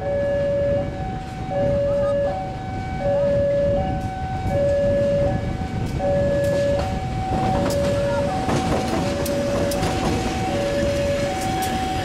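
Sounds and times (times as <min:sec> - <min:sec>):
level crossing alarm two tones: 0:00.0 - 0:12.0
passing train rumble: 0:00.0 - 0:12.0
wheels clacking over rail joints: 0:05.5 - 0:12.0.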